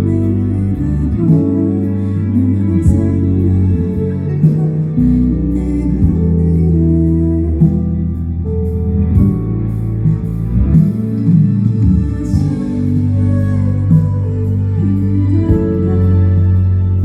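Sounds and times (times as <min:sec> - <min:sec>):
guitar: 0:00.0 - 0:17.0
live band music: 0:00.0 - 0:17.0.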